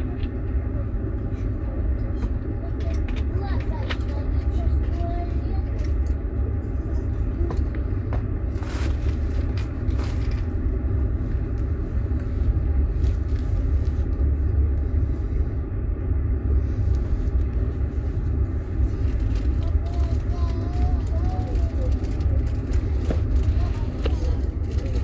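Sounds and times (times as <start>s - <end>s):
train rumbling: 0.0s - 25.0s.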